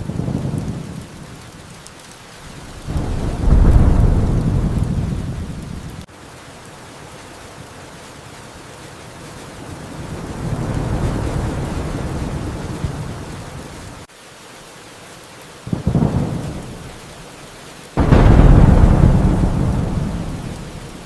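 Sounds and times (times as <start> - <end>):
rolling thunder: 0.0 - 6.1, 9.2 - 14.1, 15.7 - 17.0, 18.0 - 21.0
steady rain: 0.0 - 21.0.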